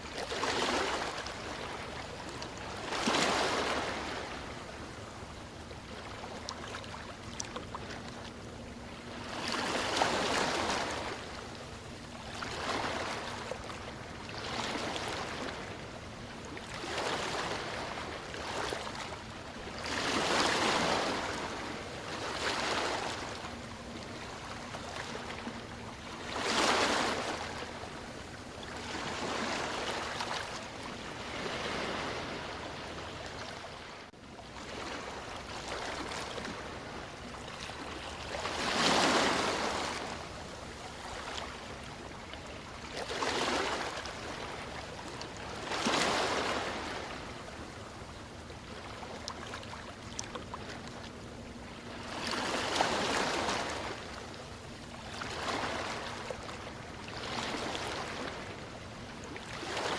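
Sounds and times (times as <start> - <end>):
ocean waves washing in: 19.7 - 34.0.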